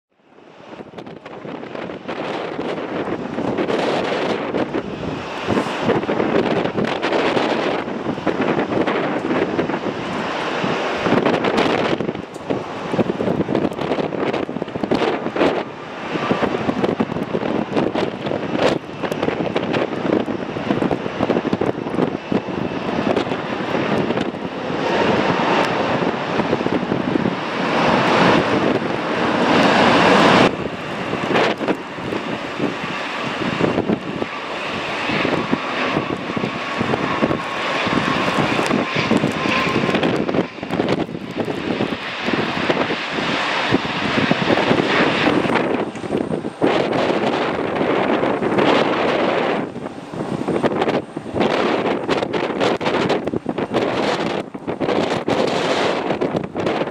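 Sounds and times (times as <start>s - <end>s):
jet engine whine: 0.1s - 56.9s
wind buffeting microphone: 0.4s - 56.9s.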